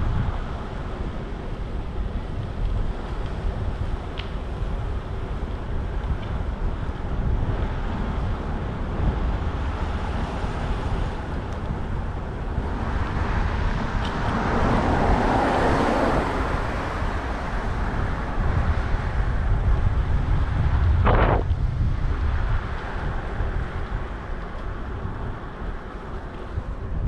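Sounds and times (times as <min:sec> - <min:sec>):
street traffic noise: 0:00.0 - 0:27.0
wind buffeting microphone: 0:00.0 - 0:27.0
vehicle passing: 0:09.1 - 0:19.4.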